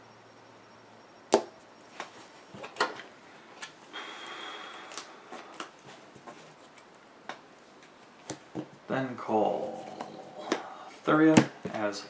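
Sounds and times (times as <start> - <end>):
cards sliding rustle: 3.6 - 7.0.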